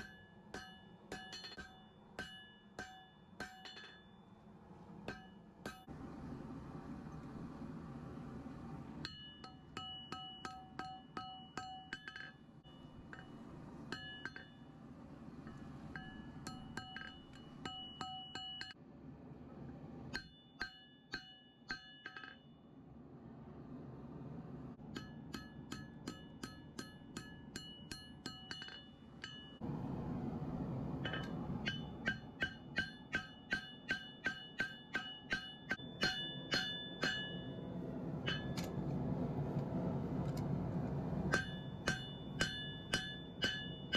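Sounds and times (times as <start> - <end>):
hammer striking metal on anvil: 0.0 - 4.4, 5.0 - 5.9, 9.0 - 14.7, 15.4 - 18.8, 20.1 - 22.6, 24.8 - 29.7, 31.0 - 37.6, 38.2 - 38.9, 41.2 - 43.9
low steady rush: 0.0 - 20.2, 22.0 - 43.9.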